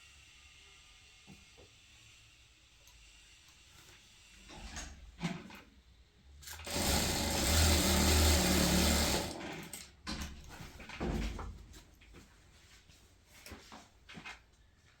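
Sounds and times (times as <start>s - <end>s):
sewing machine stitching: 6.4s - 9.8s.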